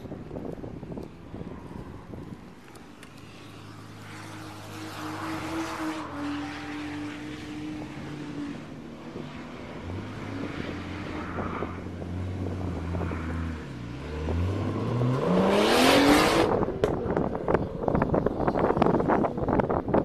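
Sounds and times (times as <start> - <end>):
car engine revving and accelerating: 3.7 - 17.0.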